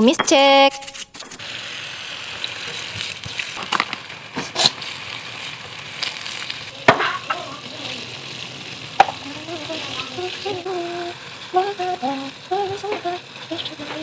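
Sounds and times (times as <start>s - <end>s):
spatula scraping and knocking pan: 0.0s - 1.4s, 6.9s - 7.4s
stir-fry sizzling in a pan: 1.0s - 14.0s.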